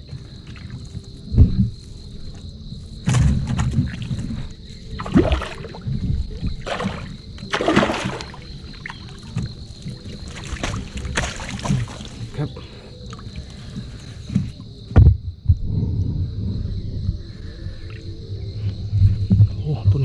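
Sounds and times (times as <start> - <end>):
water sloshing and splashing: 0.0 - 15.1.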